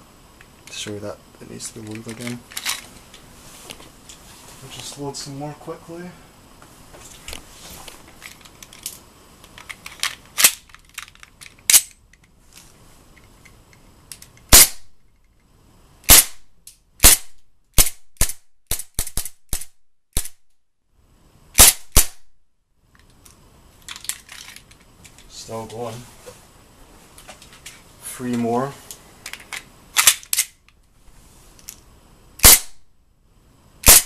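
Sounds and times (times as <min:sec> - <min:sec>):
airsoft pistol firing: 0:14.5 - 0:14.9, 0:16.1 - 0:16.4, 0:17.0 - 0:20.4, 0:21.6 - 0:22.2, 0:32.4 - 0:32.8.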